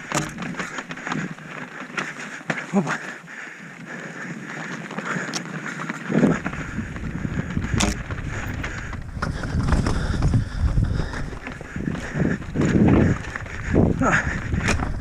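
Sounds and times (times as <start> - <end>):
bike frame rattling: 0.0 - 15.0
bike tyres on rough trail: 0.0 - 15.0
wind buffeting microphone: 6.1 - 15.0.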